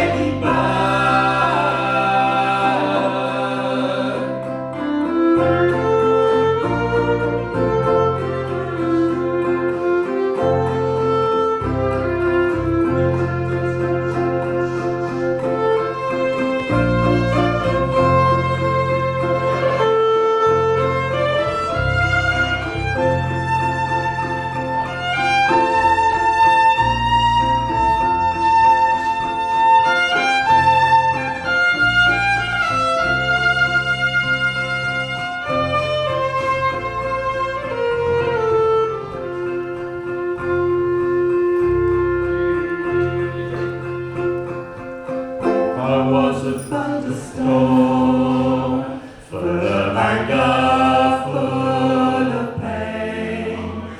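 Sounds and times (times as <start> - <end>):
low bass: 0.0 - 4.4, 20.7 - 29.4
fiddle melody: 0.0 - 53.9
guitar: 0.0 - 53.9
low held notes: 0.0 - 53.9.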